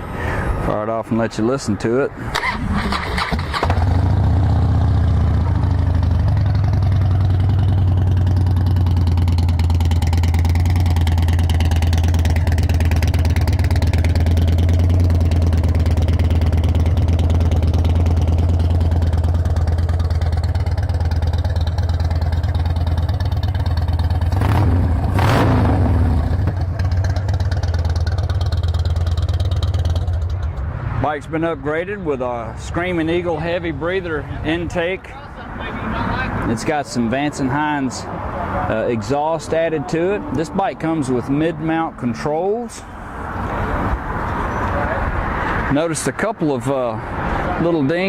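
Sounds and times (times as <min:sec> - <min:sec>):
motorcycle engine idling: 0:02.4 - 0:25.2, 0:25.9 - 0:30.6.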